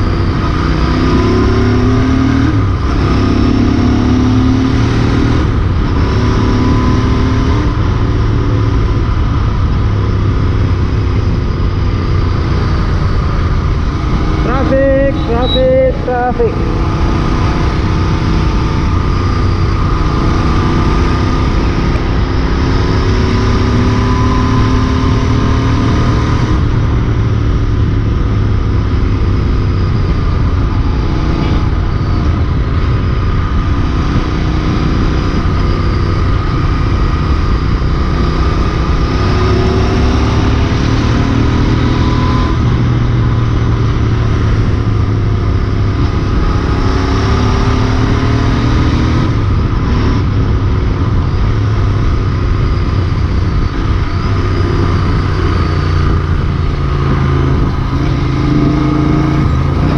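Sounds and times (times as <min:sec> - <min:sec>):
heavy low wind rush: 0:00.0 - 0:59.9
motorcycle engine running hard: 0:00.0 - 0:59.9.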